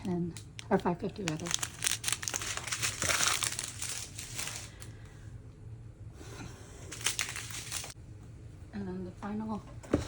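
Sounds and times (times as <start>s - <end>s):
plastic packaging crinkling: 0.4s - 4.9s, 6.9s - 8.0s.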